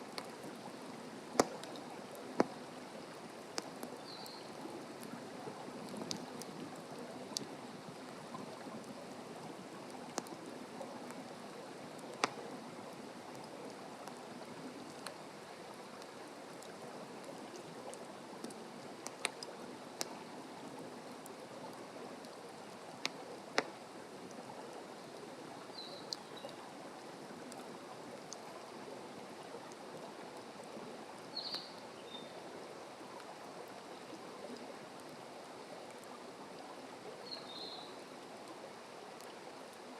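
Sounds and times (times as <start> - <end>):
fire crackling and popping: 0.0 - 11.3, 11.9 - 15.2, 16.0 - 20.3, 21.0 - 24.5
campfire burning: 0.0 - 37.2.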